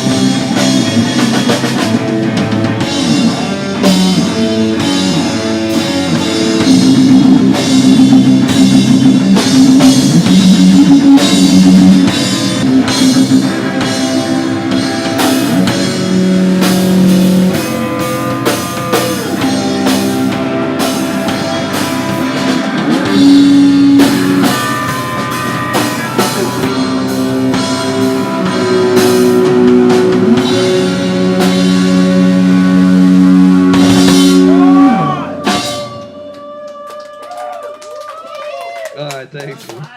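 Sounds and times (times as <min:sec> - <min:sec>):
live rock music: 0:00.0 - 0:36.9
drum hits: 0:05.9 - 0:36.2.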